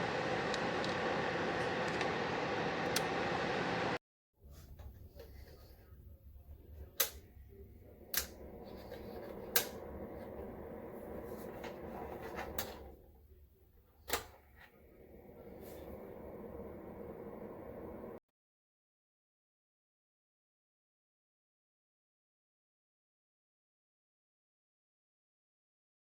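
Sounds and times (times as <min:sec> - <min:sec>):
fan heater humming: 0:00.0 - 0:04.0, 0:06.5 - 0:13.1, 0:14.1 - 0:18.2.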